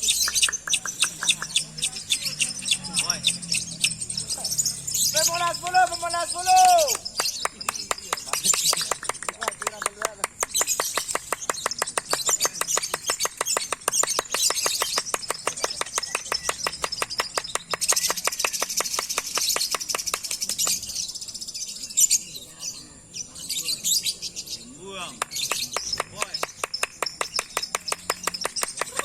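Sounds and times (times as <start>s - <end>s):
lovebird chattering chirps: 0.0s - 5.4s.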